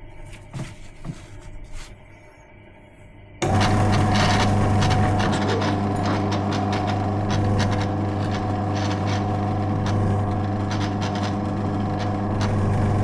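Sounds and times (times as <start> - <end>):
drill press motor humming: 3.4 - 13.0.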